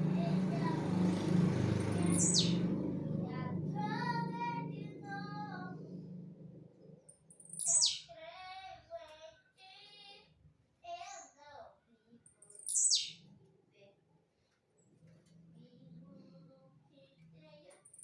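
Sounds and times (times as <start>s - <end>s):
steady low rumble: 0.0s - 7.1s
bird whistling and warbling: 1.9s - 2.6s, 7.4s - 8.1s, 12.5s - 13.2s.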